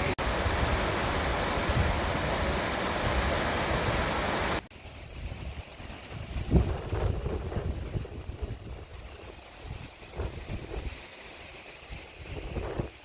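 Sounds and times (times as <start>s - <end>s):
waterfall rushing: 0.0s - 4.7s
wind buffeting microphone: 0.0s - 11.1s, 11.8s - 13.0s.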